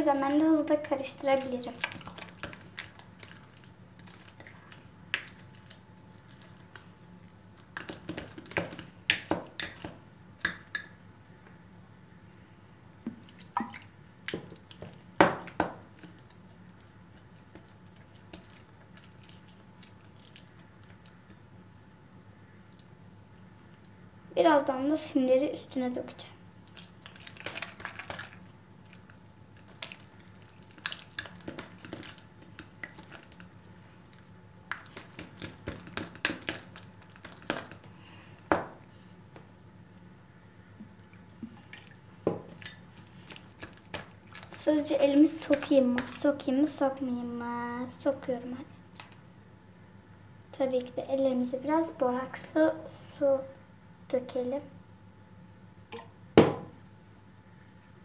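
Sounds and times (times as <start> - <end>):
slime squelching in a bowl: 0.0 - 10.9, 13.0 - 21.4, 26.6 - 38.3, 40.9 - 46.8.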